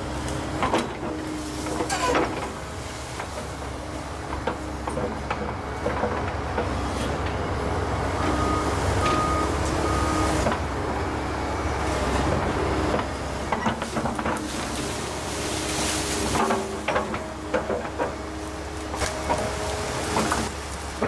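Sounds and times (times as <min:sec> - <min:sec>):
excavator engine and hydraulics: 0:00.0 - 0:21.0
sharp knocks and cracks: 0:15.6 - 0:21.0.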